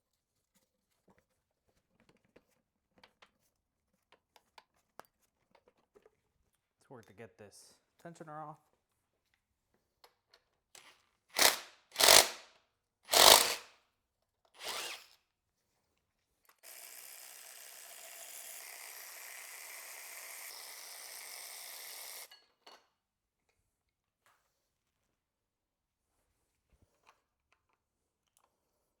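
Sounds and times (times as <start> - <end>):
power tool on a bolt: 10.8 - 12.5, 13.1 - 13.7, 14.6 - 15.2, 16.6 - 22.3.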